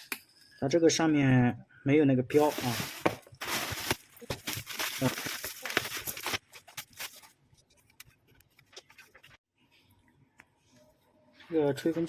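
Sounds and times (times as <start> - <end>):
packaging rustling and crinkling: 2.3 - 7.4.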